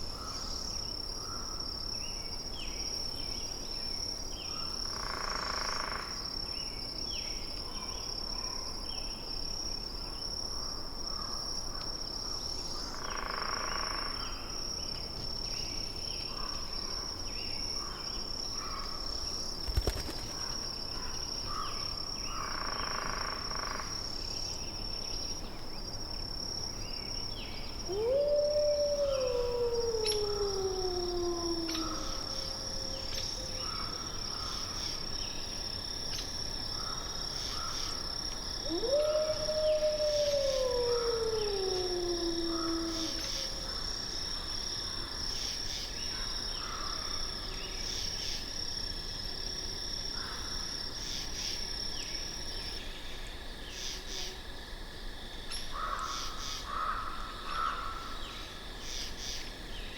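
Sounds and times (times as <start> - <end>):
long animal howl: 27.8 - 34.0, 38.6 - 43.9
soft animal calls: 27.9 - 33.6, 38.6 - 43.7.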